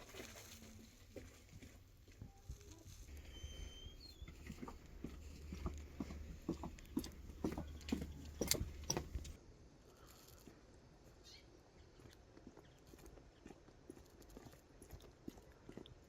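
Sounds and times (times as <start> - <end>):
irregular knocks and taps: 4.3 - 9.4.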